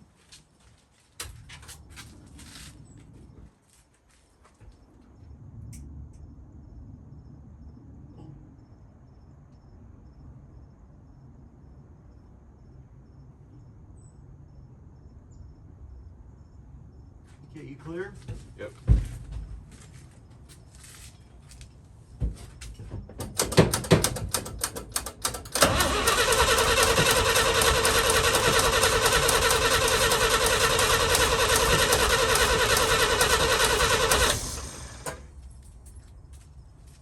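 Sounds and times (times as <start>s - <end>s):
clicks and knocks: 23.1s - 25.6s
engine starter cranking: 23.2s - 35.4s.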